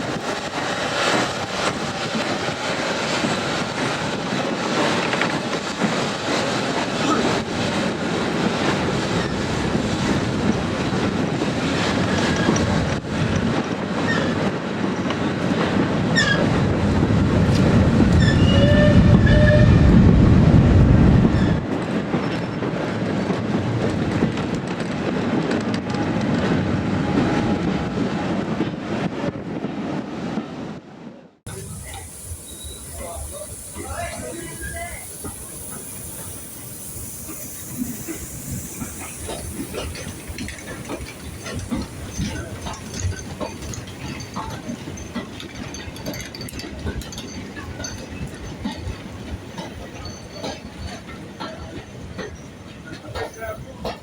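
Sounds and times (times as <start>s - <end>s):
train wagons rumbling on rails: 0.0s - 54.0s
high wheel squeals: 31.5s - 43.8s.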